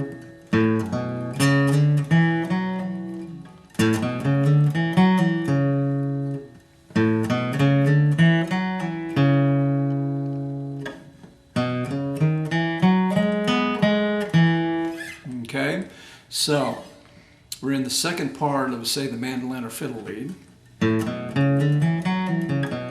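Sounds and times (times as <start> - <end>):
acoustic guitar melody: 0.0 - 15.4, 20.4 - 22.9.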